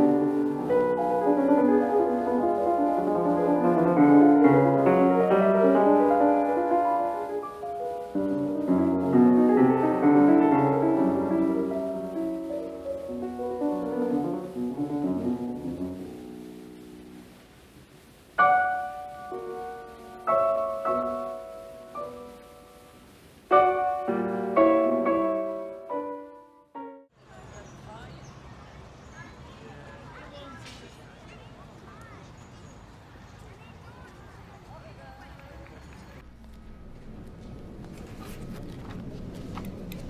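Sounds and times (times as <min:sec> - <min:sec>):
classical solo piano: 0:00.0 - 0:17.7, 0:18.4 - 0:27.1.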